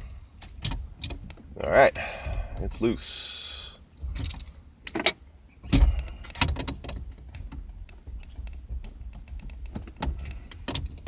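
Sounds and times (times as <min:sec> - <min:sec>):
metal clicks and knocks: 0:00.4 - 0:01.5, 0:04.1 - 0:11.0.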